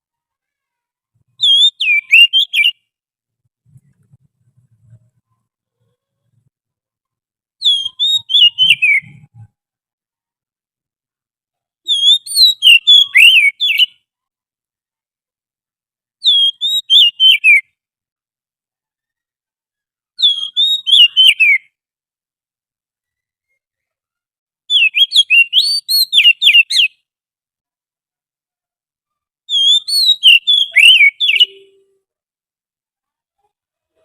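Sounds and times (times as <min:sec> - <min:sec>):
bird whistled song: 0:01.4 - 0:02.9, 0:07.6 - 0:09.5, 0:11.9 - 0:14.0, 0:16.2 - 0:17.7, 0:20.2 - 0:21.8, 0:24.7 - 0:27.0, 0:29.5 - 0:32.0.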